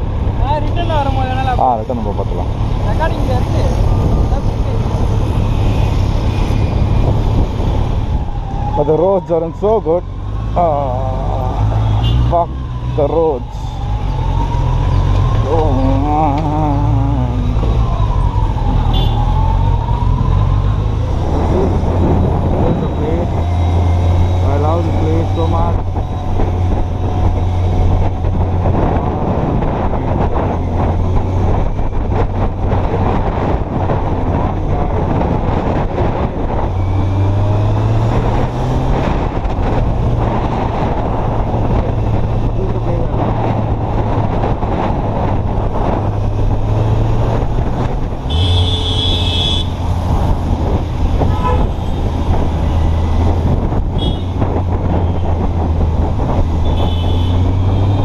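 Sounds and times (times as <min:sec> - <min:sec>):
road and wind noise: 0:00.0 - 0:58.0
vehicle horn honk: 0:48.3 - 0:49.7, 0:51.3 - 0:51.7, 0:54.0 - 0:54.3, 0:56.6 - 0:57.5.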